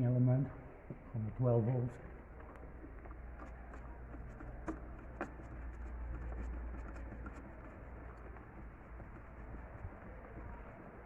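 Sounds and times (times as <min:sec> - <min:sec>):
low steady hum: 0:00.0 - 0:11.0
faint scratching: 0:02.6 - 0:11.0.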